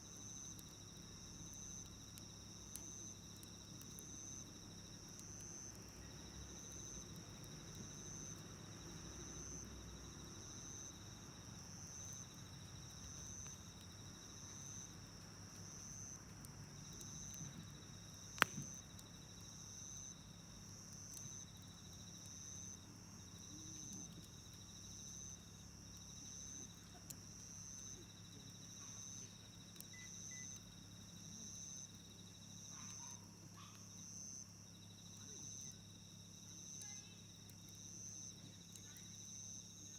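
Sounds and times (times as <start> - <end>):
insects chirping: 0.0 - 39.9
low insect trill: 0.0 - 39.9
sharp pop: 18.4 - 18.8.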